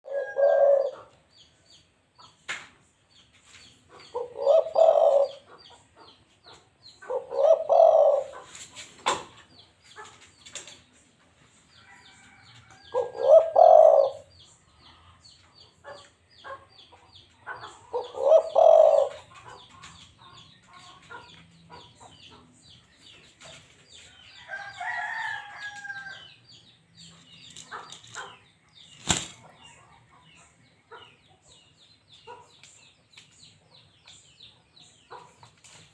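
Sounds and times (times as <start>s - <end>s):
dove cooing: 0.0s - 1.1s, 4.1s - 5.5s, 7.0s - 8.5s, 12.9s - 14.3s, 17.9s - 19.4s
small birds chirping: 0.0s - 35.9s.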